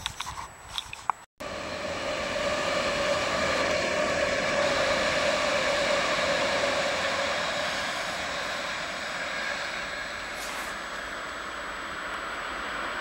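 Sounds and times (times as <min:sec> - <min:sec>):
electric trains rumbling: 0:00.8 - 0:13.0.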